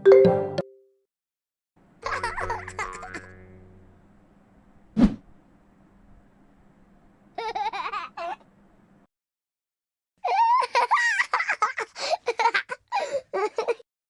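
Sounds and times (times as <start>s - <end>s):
cartoon children laughing: 2.0s - 3.5s, 7.4s - 8.4s, 10.2s - 13.8s.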